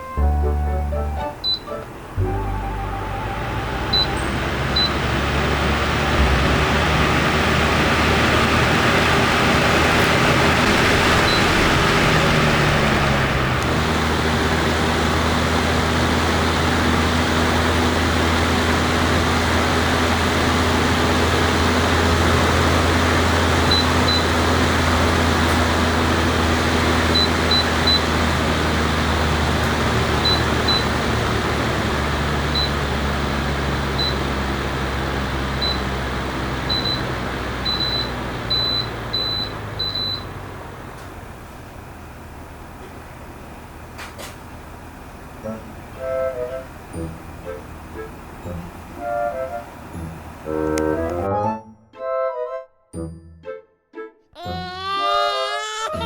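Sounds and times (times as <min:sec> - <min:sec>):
electric fan running: 0:00.0 - 0:51.3
short high beeps: 0:01.2 - 0:01.8, 0:03.9 - 0:05.0.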